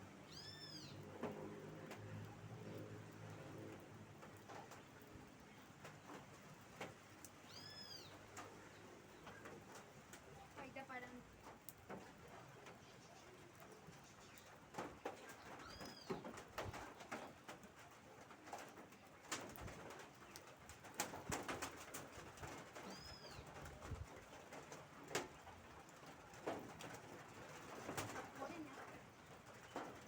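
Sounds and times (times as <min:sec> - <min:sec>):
rainwater dripping: 0:00.1 - 0:30.0
bird chirping: 0:00.3 - 0:01.0, 0:07.5 - 0:08.2.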